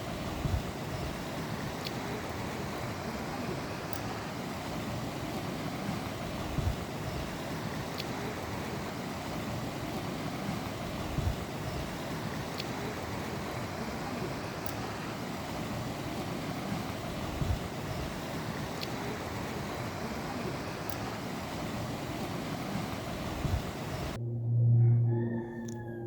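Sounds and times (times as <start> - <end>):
wind rushing on microphone: 0.0 - 3.6, 4.3 - 12.5, 15.1 - 24.2
low wind buffets: 0.0 - 26.0
faint high tick: 1.8 - 2.0.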